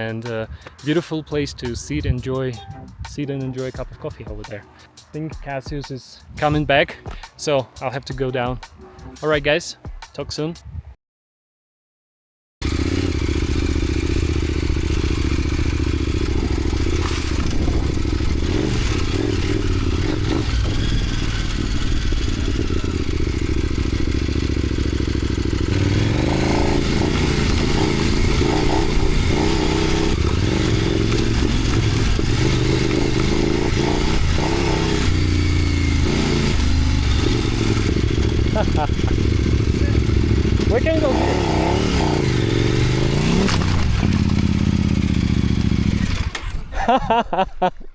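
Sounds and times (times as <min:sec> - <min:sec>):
motorcycle engine running: 0:12.6 - 0:46.7
clattering and scraping: 0:16.4 - 0:18.4.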